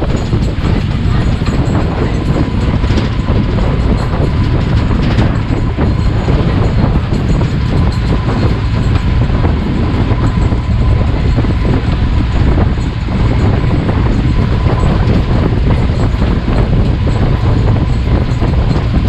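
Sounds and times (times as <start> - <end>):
faint steady whine: 0.0 - 19.0
light rattling clatter: 0.0 - 19.0
vehicle engine rumble: 0.0 - 19.0.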